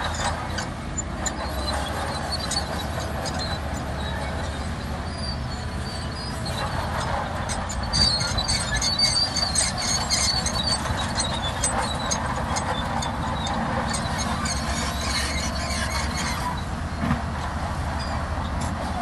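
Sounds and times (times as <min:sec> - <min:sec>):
bulldozer diesel engine rumbling: 0:00.0 - 0:19.0
steel tracks squealing and clicking: 0:00.0 - 0:19.0.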